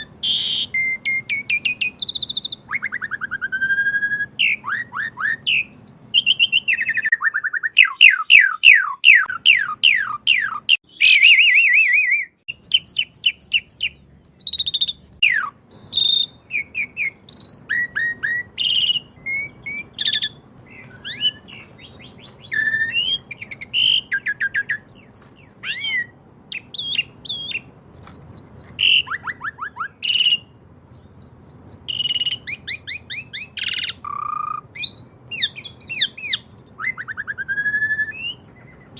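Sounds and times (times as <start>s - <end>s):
starling singing: 0.0s - 38.9s.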